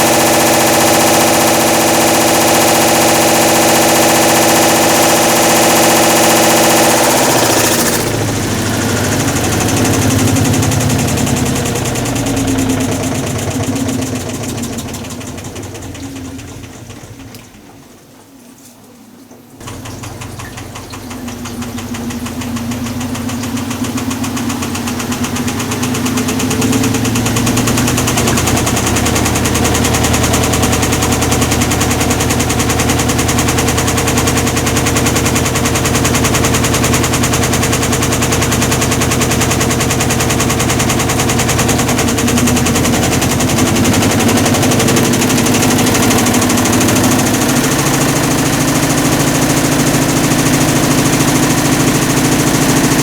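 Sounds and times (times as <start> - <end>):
washing machine rattling: 0.0 - 53.0.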